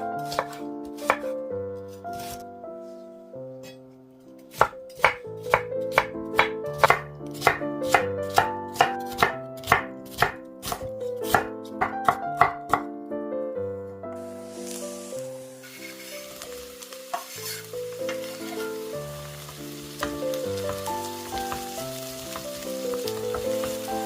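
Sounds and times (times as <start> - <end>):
soft background music: 0.0 - 24.0
knife chopping on cutting board: 0.2 - 1.3, 2.1 - 2.4, 4.5 - 12.9.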